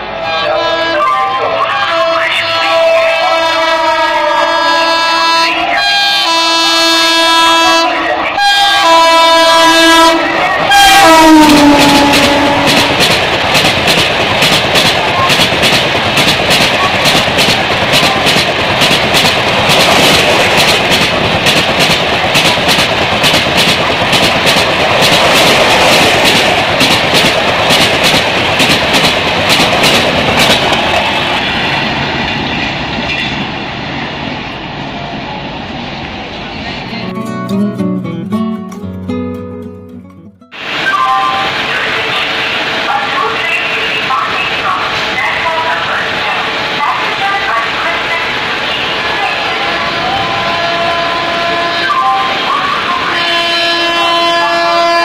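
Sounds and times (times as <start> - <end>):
locomotive air horn blasts: 2.8 - 13.0, 49.8 - 52.0, 53.0 - 55.0
train wheels rumbling and clattering: 10.4 - 36.9.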